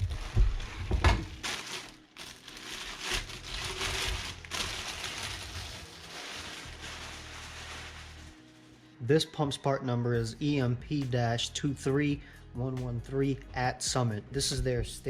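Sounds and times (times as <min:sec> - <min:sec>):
cardboard rustling and crinkling: 0:00.0 - 0:08.4.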